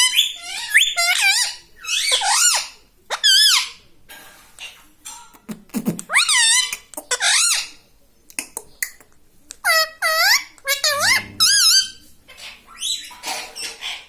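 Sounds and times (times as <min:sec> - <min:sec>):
parakeet chatter: 0:00.0 - 0:03.8, 0:09.6 - 0:14.0
parakeet squeaky calls: 0:00.0 - 0:03.8, 0:09.7 - 0:14.0.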